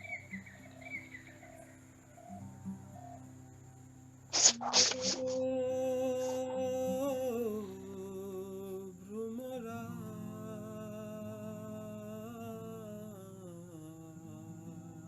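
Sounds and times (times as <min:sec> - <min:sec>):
person humming melody: 0:04.4 - 0:14.9.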